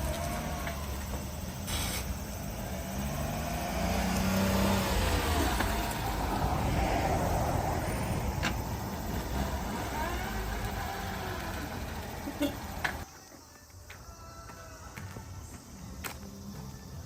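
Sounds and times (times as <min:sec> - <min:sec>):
road rumble: 0:00.0 - 0:13.1
small truck engine: 0:00.0 - 0:13.1.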